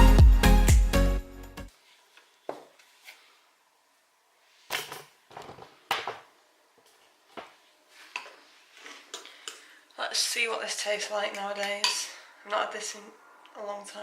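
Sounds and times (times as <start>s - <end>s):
background music: 0.0s - 1.7s
knocks and rustles of handling: 4.6s - 9.3s.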